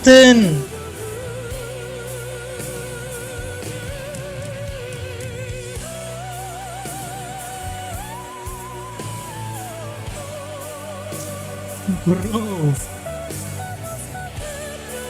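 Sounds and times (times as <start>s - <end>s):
man singing operatic notes: 0.0s - 0.7s, 11.9s - 12.8s
instrumental backing music: 0.0s - 15.0s.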